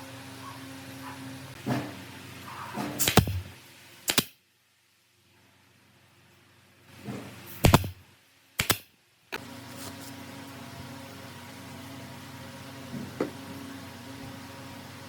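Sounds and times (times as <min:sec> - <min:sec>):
steady machine hum: 0:00.0 - 0:03.8
sharp knocks: 0:02.8 - 0:03.5.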